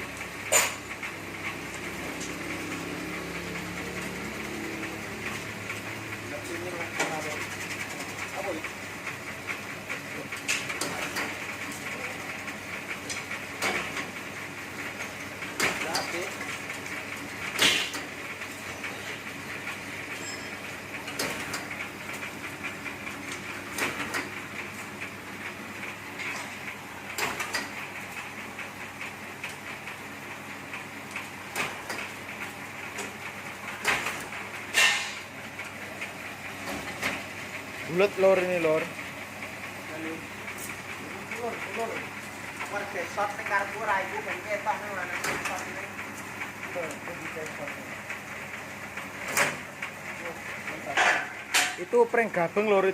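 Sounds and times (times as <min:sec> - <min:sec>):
skewer machine whirring: 0:00.0 - 0:50.9
sharp knocks and clatters: 0:26.2 - 0:28.7.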